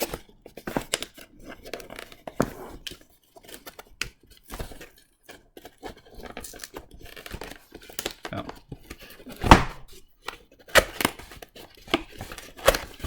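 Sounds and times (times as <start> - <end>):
cardboard tearing and scraping: 8.8 - 10.0.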